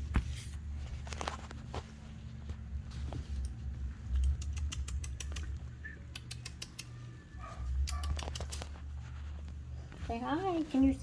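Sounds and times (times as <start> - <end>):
kittens lapping and chewing: 1.5 - 10.0.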